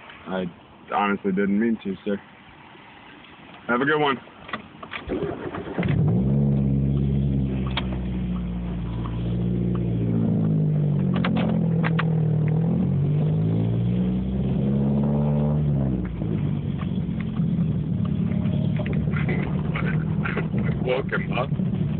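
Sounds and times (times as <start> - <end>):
car engine revving pulling away: 5.0 - 21.9.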